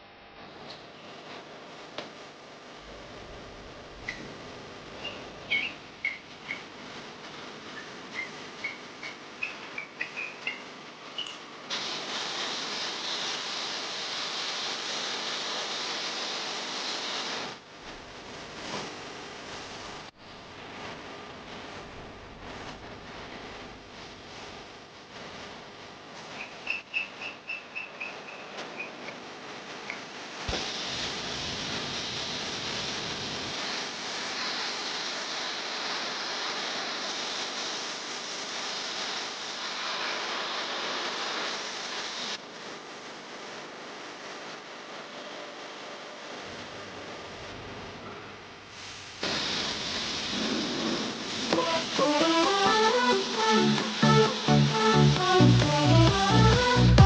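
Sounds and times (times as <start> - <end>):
water jet spraying car: 11.7 - 17.6, 30.6 - 42.4, 48.8 - 52.3.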